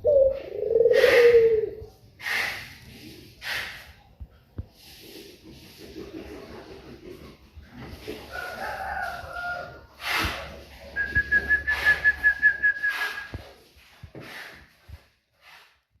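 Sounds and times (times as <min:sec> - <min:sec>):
bird whistling: 0:11.0 - 0:13.4.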